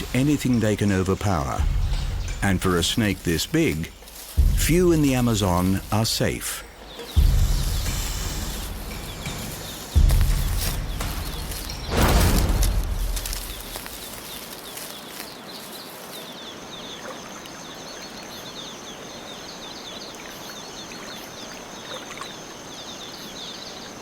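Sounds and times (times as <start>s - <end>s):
steady high whine: 0.0s - 14.2s
rushing hiss: 0.0s - 16.1s.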